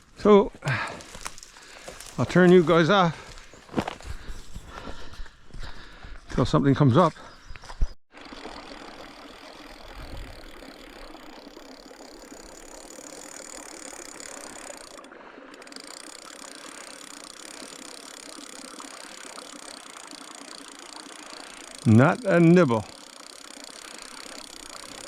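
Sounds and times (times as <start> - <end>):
fishing reel gears whirring: 8.1 - 25.0.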